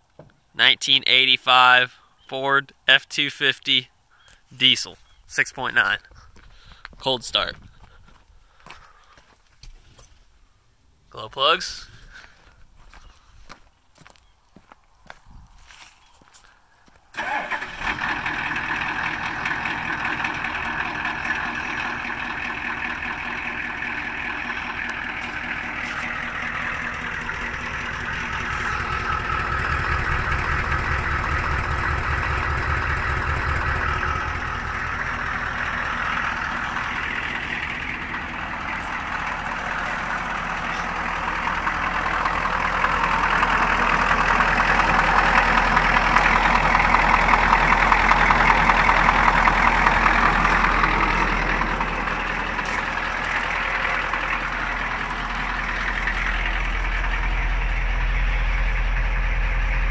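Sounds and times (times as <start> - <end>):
diesel engine idling with clatter: 4.2 - 10.2, 11.2 - 59.9.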